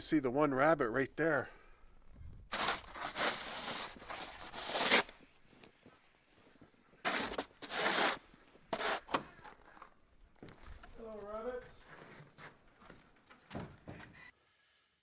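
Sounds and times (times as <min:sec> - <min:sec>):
footsteps crunching in snow: 0:02.5 - 0:05.3, 0:07.0 - 0:09.0.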